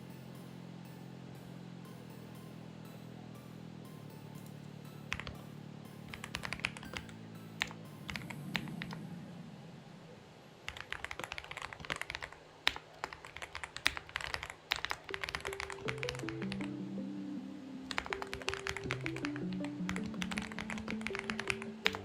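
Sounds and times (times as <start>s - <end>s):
background music: 0.0s - 9.2s, 15.0s - 22.0s
mechanical keyboard typing: 5.1s - 5.4s, 6.1s - 9.0s, 10.7s - 16.8s, 17.9s - 22.0s.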